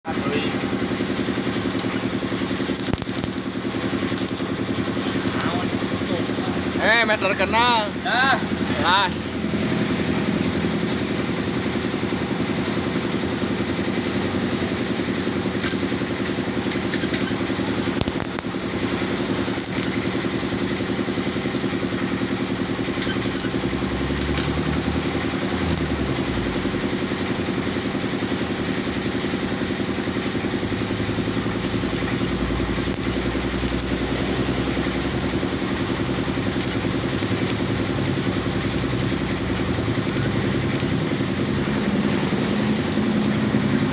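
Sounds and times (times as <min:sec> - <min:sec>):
electric arc welding buzz: 0:01.2 - 0:06.0, 0:15.5 - 0:26.9, 0:30.8 - 0:43.9.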